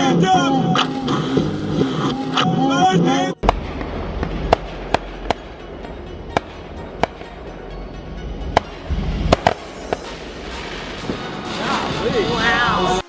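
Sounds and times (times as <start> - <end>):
low rumbling background: 3.3 - 12.1
fireworks cracking: 3.4 - 7.8, 8.5 - 13.0.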